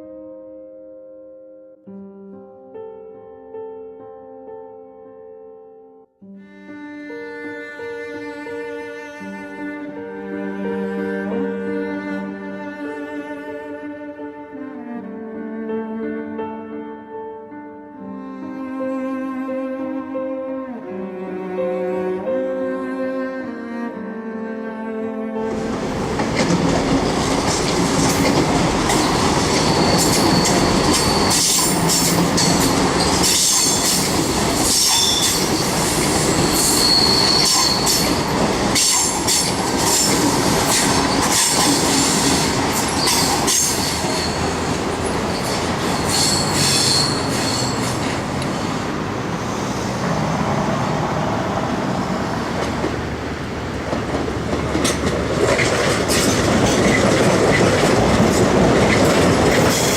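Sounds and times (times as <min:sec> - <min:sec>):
wheels clacking over rail joints: 0:25.5 - 0:48.6, 0:52.5 - 0:59.9
train rumble: 0:25.5 - 0:59.9
train wheels squealing: 0:28.8 - 0:48.2.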